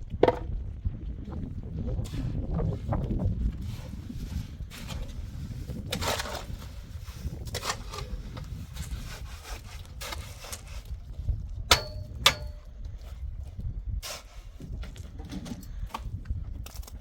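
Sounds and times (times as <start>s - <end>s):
sharp knocks with metallic ring: 11.7s - 12.7s.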